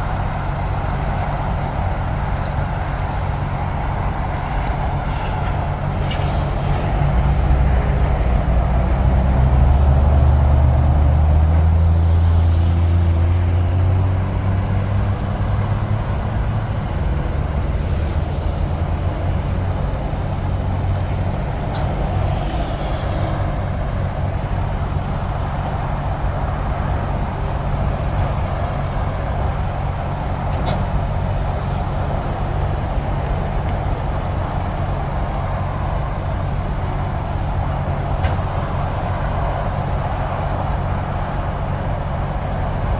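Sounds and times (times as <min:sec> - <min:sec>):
heavy engine rumble passing: 0:00.0 - 0:42.9
highway traffic rushing: 0:00.0 - 0:42.9.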